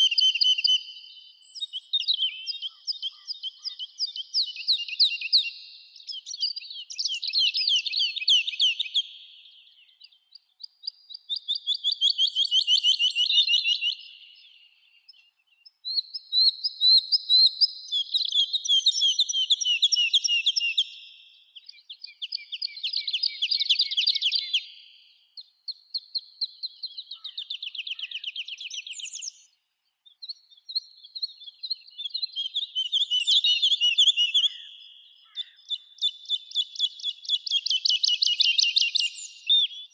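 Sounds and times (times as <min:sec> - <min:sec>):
songbird trilling song: 0:00.0 - 0:39.9
high bird chirps: 0:10.8 - 0:29.5, 0:30.1 - 0:39.9.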